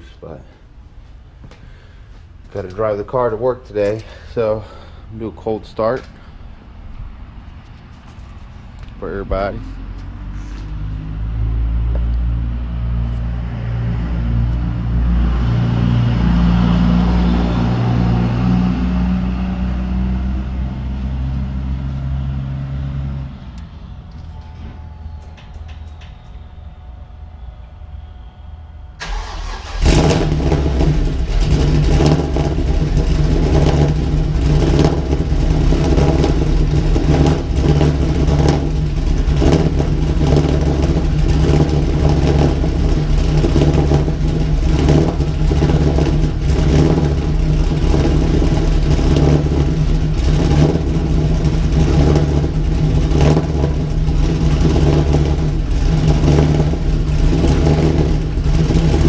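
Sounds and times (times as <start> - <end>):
car engine cranking and starting: 29.0 - 59.0.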